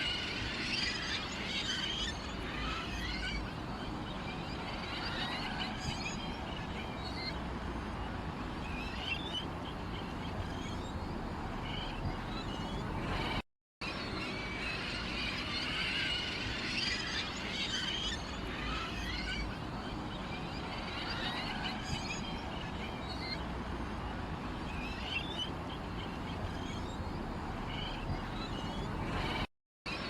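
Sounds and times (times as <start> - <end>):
small birds chirping: 0.0 - 29.5.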